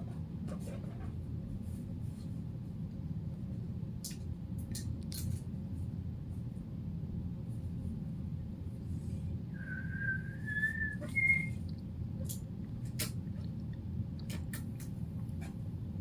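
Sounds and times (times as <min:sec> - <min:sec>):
thin whistling tone: 0:09.5 - 0:11.6.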